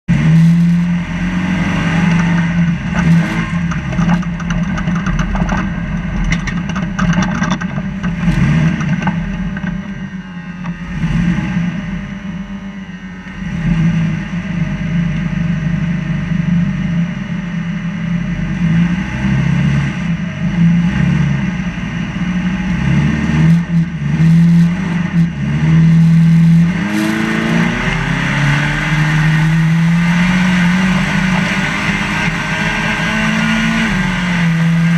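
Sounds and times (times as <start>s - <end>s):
truck engine revving: 0.0s - 12.5s, 18.4s - 34.9s
truck knocks and rattles: 2.1s - 9.9s.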